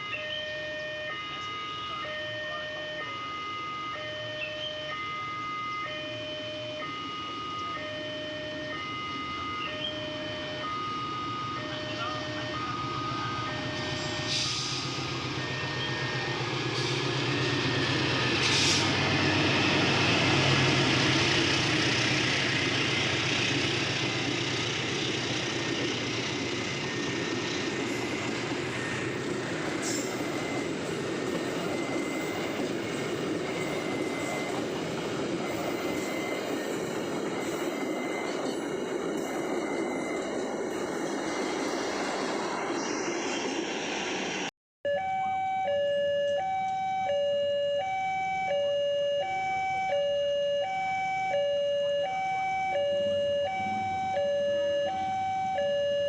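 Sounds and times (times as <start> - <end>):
electronic warning tones: 0.0 - 43.2, 44.9 - 56.0
train wheels rumbling on rails: 12.0 - 44.5.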